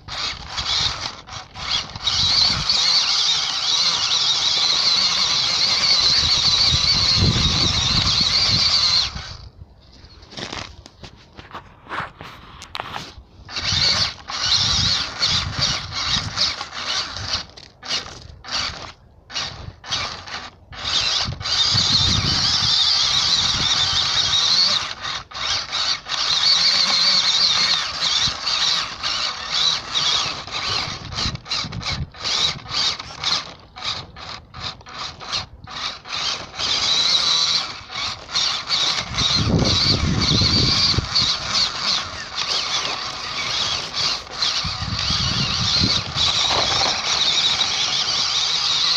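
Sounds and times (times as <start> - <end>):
rc car motor whining: 0.0 - 10.7, 11.6 - 48.9.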